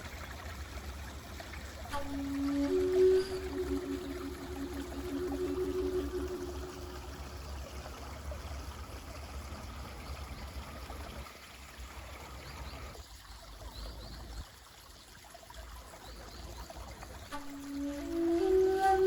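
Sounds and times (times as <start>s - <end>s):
mountain stream trickling: 0.0s - 19.0s
low shakuhachi note: 1.9s - 8.2s, 17.3s - 19.0s.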